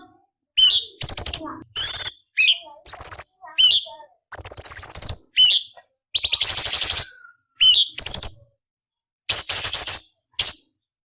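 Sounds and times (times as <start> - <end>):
harsh rasping bird calls: 0.0 - 8.5
bird singing whistled phrases: 0.6 - 8.5, 9.3 - 10.8.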